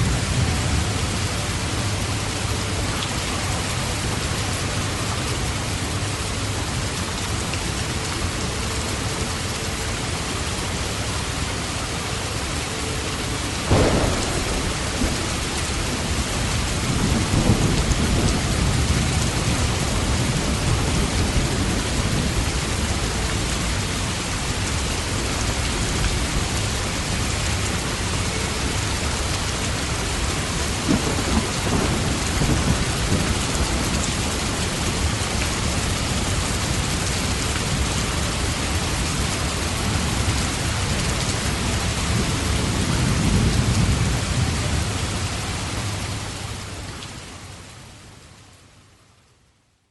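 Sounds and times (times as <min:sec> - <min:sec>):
heavy rain: 0:00.0 - 0:49.9
low thunder rumble: 0:13.4 - 0:23.6, 0:29.6 - 0:40.7
thunderclap rolling: 0:13.6 - 0:22.3, 0:30.8 - 0:34.2.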